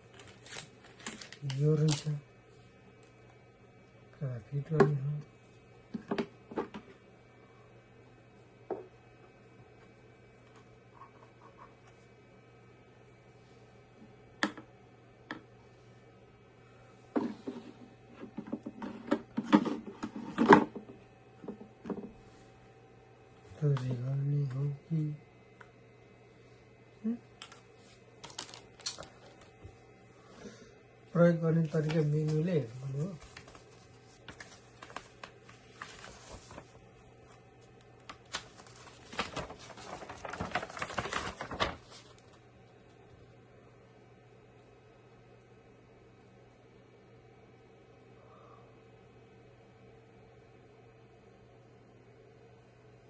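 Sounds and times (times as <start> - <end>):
hands handling small objects: 0.1 - 2.2, 28.2 - 29.5.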